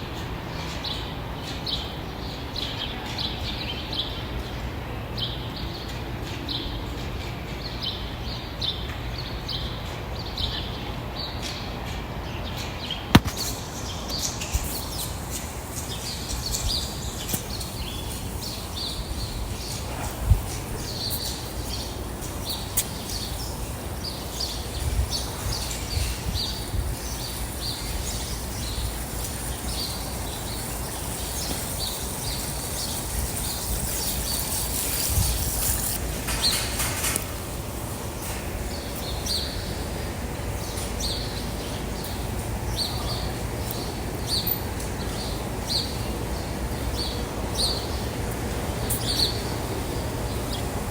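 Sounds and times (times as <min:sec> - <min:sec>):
outdoor background hiss: 0:00.0 - 0:50.9
small birds chirping: 0:00.2 - 0:50.9
sharp click: 0:13.1 - 0:15.4
soft thump: 0:13.2 - 0:13.5.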